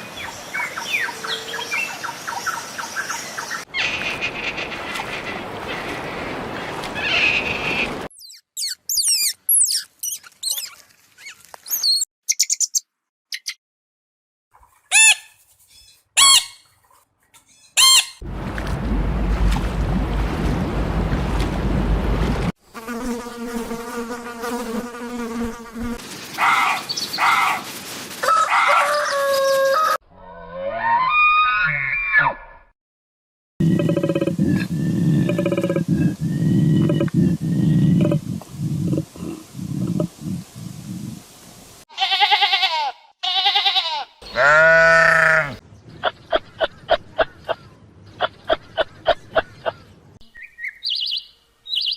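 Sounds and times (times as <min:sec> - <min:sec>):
wind-blown surf: 0:18.2 - 0:22.6
animal bleating: 0:41.9 - 0:45.6.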